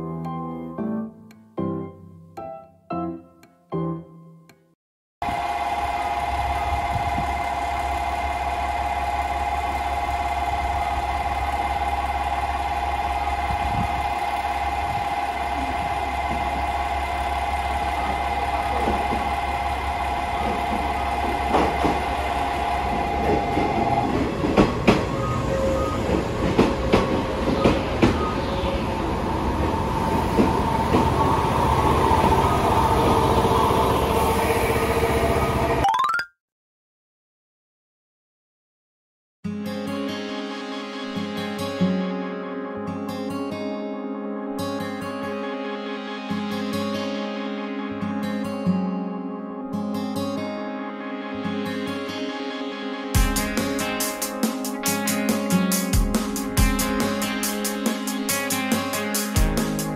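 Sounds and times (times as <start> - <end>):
diesel railcar idling: 5.2 - 35.8
train wheels clacking on rail joints: 20.4 - 25.2
faint wavering brake squeal: 25.1 - 26.2.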